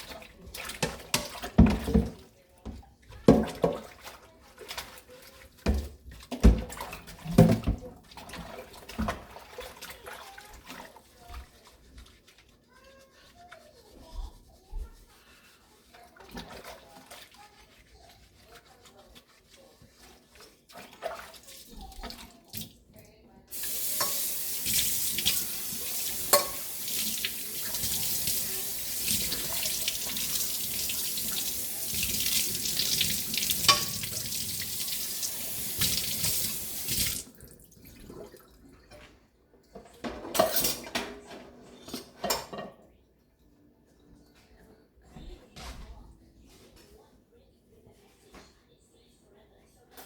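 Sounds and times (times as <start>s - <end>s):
kitchen faucet running: 23.5s - 37.6s.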